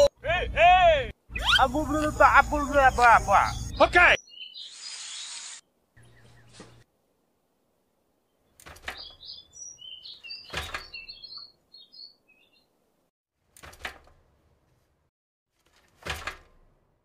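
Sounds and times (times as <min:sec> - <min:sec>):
birds chirping: 0:01.1 - 0:06.9, 0:08.1 - 0:13.0.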